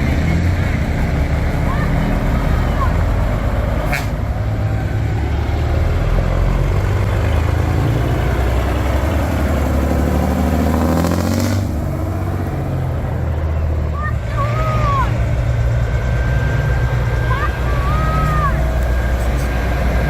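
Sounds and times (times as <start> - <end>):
truck diesel engine accelerating: 0.0 - 20.0.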